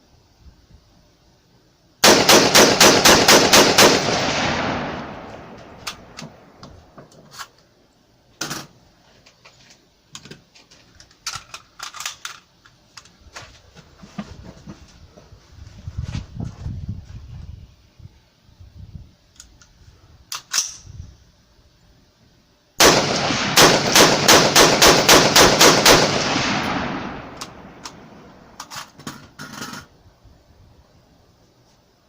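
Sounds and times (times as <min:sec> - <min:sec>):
rapid rifle shots echoing: 0:02.0 - 0:06.6, 0:22.8 - 0:28.6.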